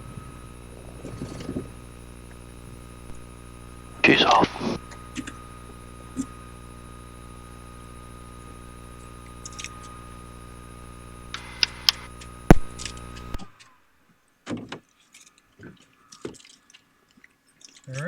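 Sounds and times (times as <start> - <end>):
rustling in cabin: 0.0 - 2.6
electrical hum and whine: 0.0 - 14.0
switch clicks: 11.3 - 13.3.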